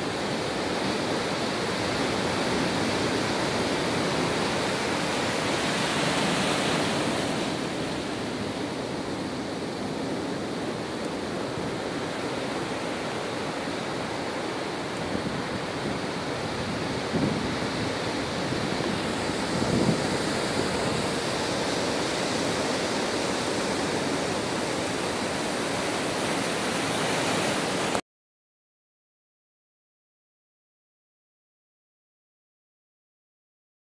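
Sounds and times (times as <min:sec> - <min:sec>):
rushing water: 0:00.0 - 0:28.0
storm wind rushing: 0:14.8 - 0:25.9.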